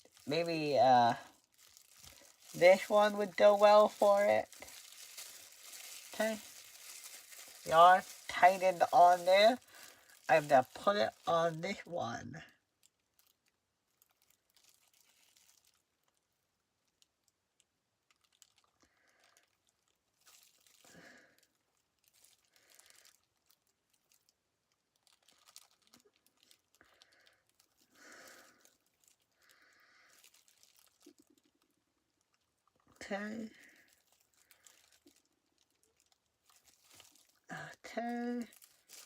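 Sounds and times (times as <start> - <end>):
squeaky squishes: 1.4 - 11.3, 13.1 - 16.2, 18.1 - 27.9, 30.1 - 31.6, 33.7 - 37.5
light plastic clicks and rustles: 16.8 - 27.9, 30.1 - 33.0.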